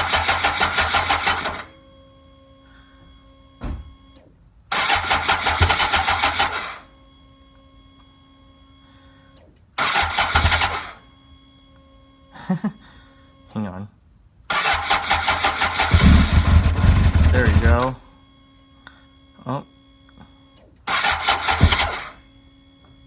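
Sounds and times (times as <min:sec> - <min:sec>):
motorcycle starter cranking: 0:00.0 - 0:01.7, 0:04.7 - 0:06.8, 0:09.8 - 0:10.8, 0:14.5 - 0:18.0, 0:20.9 - 0:22.2.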